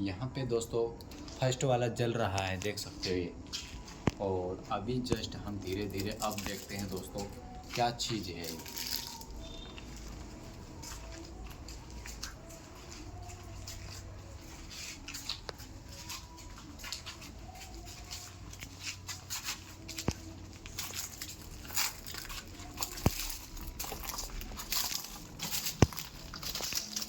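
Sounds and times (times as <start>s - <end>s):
light rustles and soft ticks: 10.8s - 27.0s.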